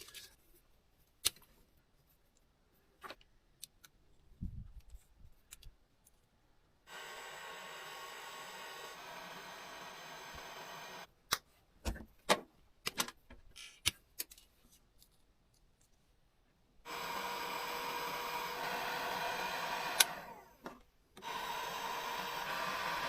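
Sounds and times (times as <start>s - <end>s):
heat gun blowing: 6.9s - 11.1s, 16.9s - 20.6s, 21.2s - 23.0s.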